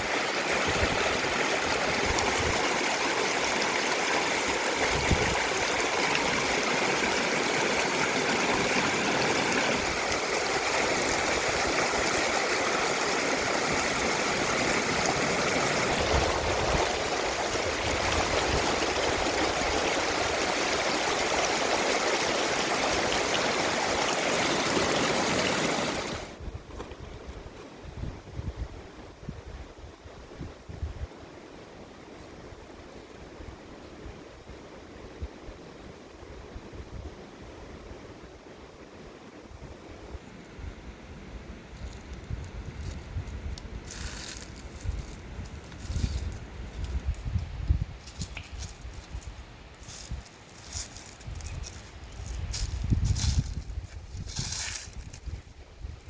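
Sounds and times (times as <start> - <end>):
water rushing over rocks: 0.0 - 26.4.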